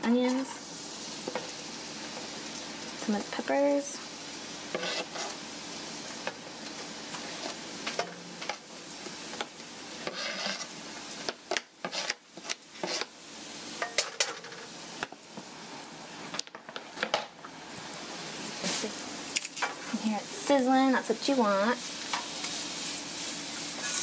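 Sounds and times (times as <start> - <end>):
vegetables sizzling in oil: 0.0 - 24.0
spatula scraping a pan: 4.7 - 5.4, 10.0 - 13.1, 21.8 - 24.0.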